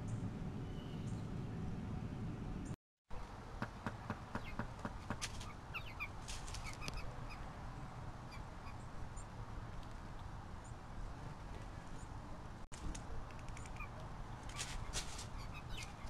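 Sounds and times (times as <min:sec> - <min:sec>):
birds chirping: 0:03.6 - 0:09.4, 0:13.5 - 0:16.0.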